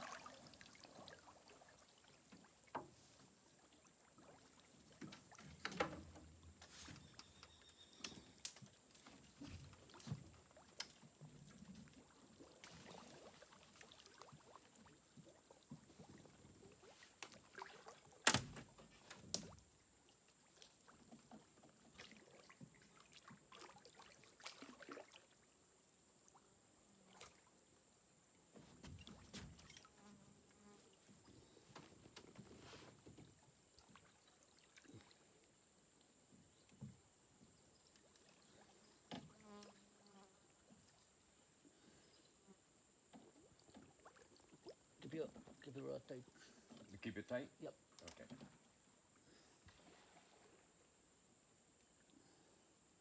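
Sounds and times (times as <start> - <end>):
faint steady high tone: 6.9 - 8.4.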